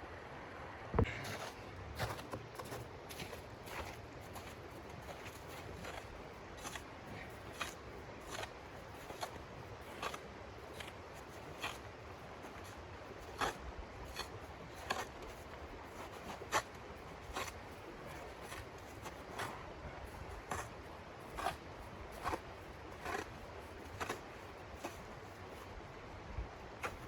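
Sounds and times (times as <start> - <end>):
footsteps crunching in snow: 1.0 - 27.0.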